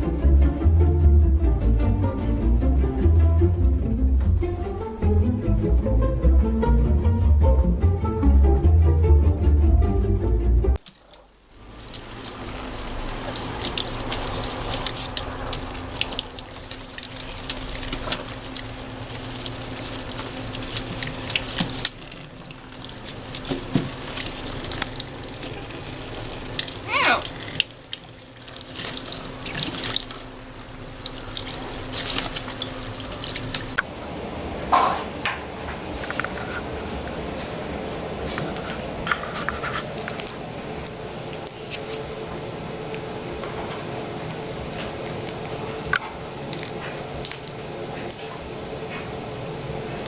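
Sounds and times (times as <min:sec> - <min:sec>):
tap water running into sink: 0:10.8 - 0:33.8.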